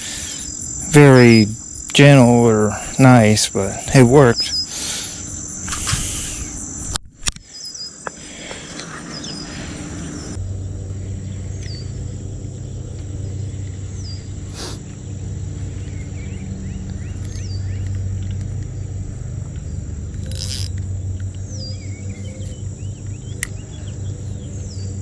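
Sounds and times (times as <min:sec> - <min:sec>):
insects droning: 0:00.0 - 0:25.0
low hum: 0:08.2 - 0:25.0.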